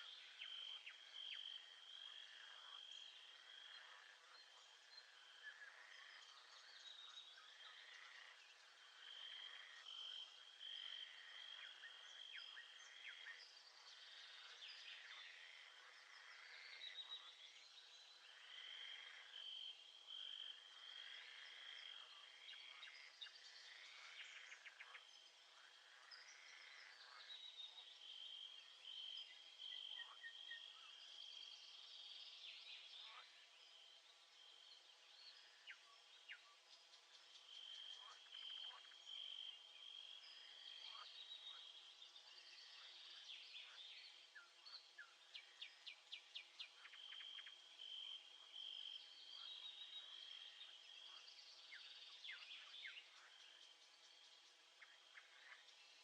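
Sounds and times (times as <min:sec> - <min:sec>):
frogs calling in chorus: 0:07.5 - 0:13.3, 0:18.3 - 0:30.7.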